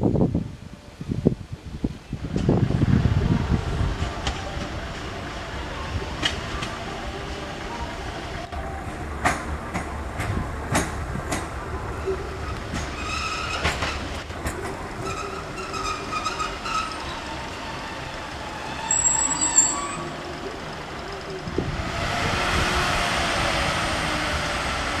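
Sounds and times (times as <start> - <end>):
train wheels clicking over rail joints: 8.9 - 21.6
high wavering wheel squeal: 12.1 - 14.1, 15.0 - 21.4
low diesel rumble: 14.0 - 25.0.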